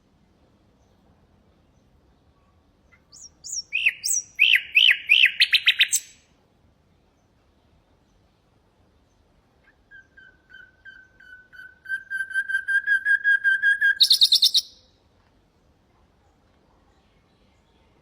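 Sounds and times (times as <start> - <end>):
nightingale singing: 2.8 - 6.3, 9.1 - 15.0.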